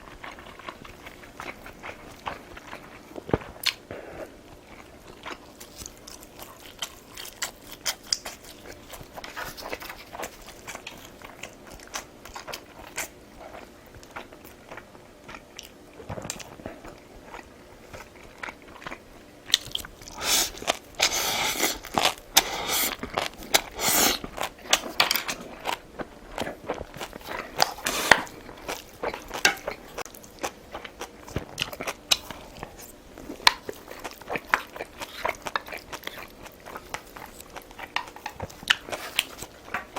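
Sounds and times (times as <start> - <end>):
person chewing and biting: 0.1 - 39.9.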